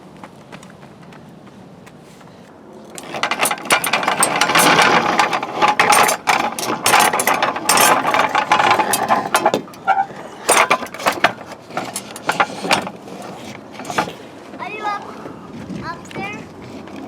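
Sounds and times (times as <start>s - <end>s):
rapid ratcheting clicks: 3.0s - 9.5s.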